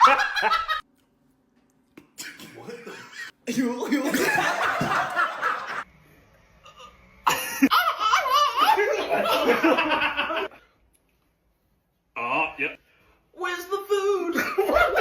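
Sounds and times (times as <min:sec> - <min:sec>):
people laughing loudly: 0:00.0 - 0:00.8, 0:03.9 - 0:05.8, 0:07.3 - 0:10.5.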